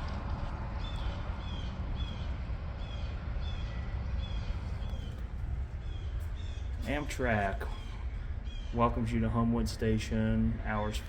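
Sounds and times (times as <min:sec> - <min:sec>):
low outdoor rumble: 0:00.0 - 0:11.0
bird chirping: 0:00.8 - 0:09.1.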